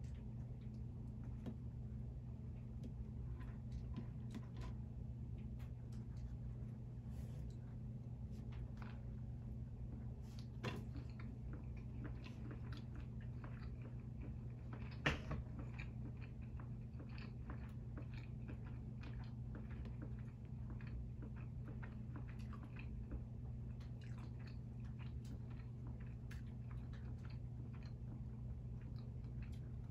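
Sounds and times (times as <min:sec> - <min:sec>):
steady low hum: 0:00.0 - 0:29.9
biting and chewing burger: 0:08.2 - 0:29.9.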